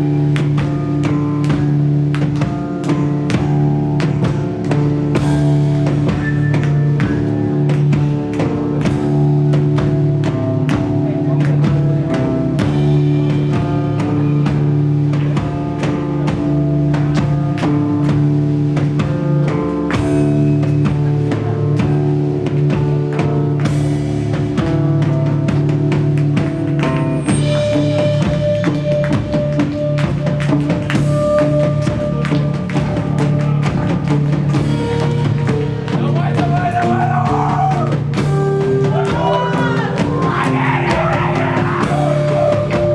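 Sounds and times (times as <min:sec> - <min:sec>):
drum kit beat: 0:00.0 - 0:42.9
sustained guitar notes: 0:38.8 - 0:42.9.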